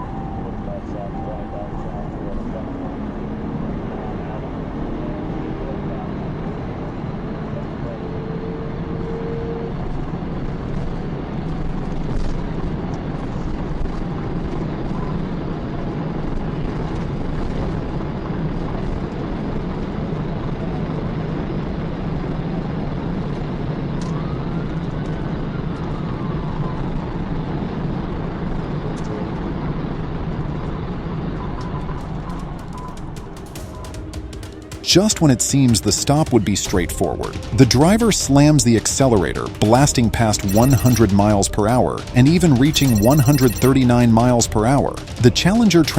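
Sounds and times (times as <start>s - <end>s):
car road and engine noise: 2.2s - 11.5s.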